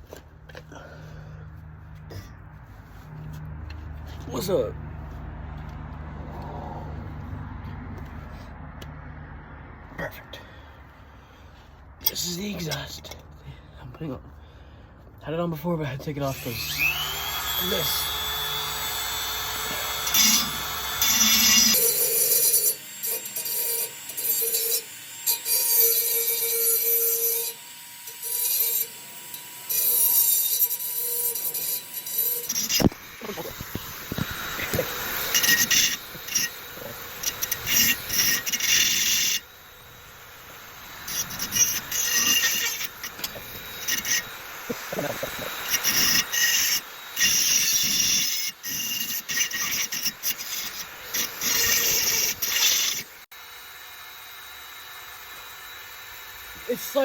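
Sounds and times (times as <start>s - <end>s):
rotary tool motor whine: 16.2s - 57.0s
metal grinding hiss: 16.3s - 53.3s.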